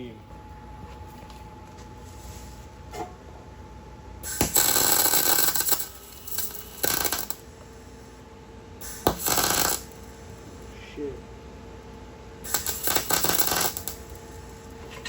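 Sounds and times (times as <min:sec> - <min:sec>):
arc welder crackling and sizzling: 0:04.2 - 0:08.2, 0:08.8 - 0:11.1, 0:12.3 - 0:15.0.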